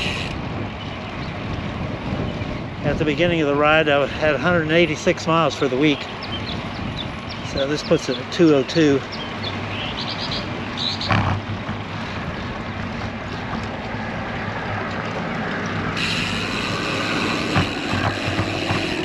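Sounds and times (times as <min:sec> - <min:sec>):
wind rushing over microphone: 0:00.0 - 0:08.2, 0:09.0 - 0:19.0
bicycle tyre noise on pavement: 0:00.0 - 0:19.0
high steady hum: 0:15.4 - 0:19.0.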